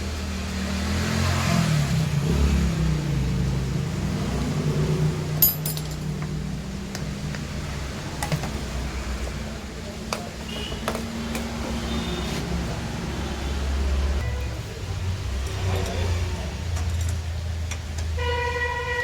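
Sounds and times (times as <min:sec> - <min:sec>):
metal tools clinking: 0:05.4 - 0:06.4, 0:15.4 - 0:17.4.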